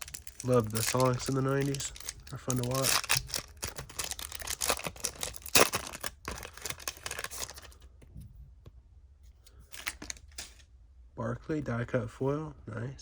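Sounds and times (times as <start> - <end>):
foil wrapper crinkling and tearing: 0.0 - 7.8, 9.6 - 10.6.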